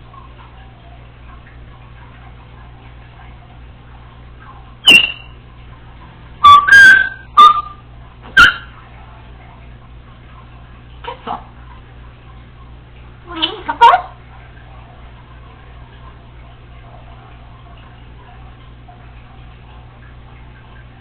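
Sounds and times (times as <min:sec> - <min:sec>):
faint room hum: 0:00.0 - 0:21.0
parrot giving loud sharp calls: 0:04.8 - 0:05.3, 0:06.4 - 0:07.8.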